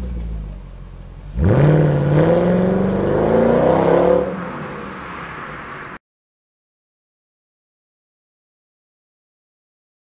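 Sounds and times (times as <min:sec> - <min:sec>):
car engine accelerating hard: 0:00.0 - 0:05.7.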